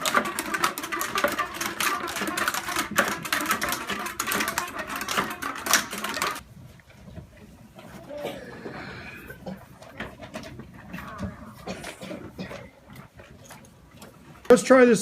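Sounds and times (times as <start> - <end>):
rubber bands snapping and twanging: 0.0 - 6.4.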